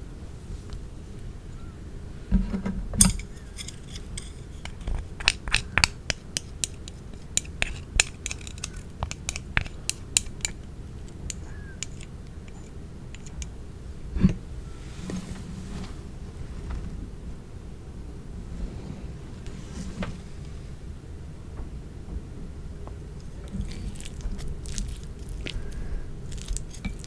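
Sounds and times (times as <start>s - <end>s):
utensils clinking against dishes: 2.6s - 13.5s, 26.3s - 27.0s.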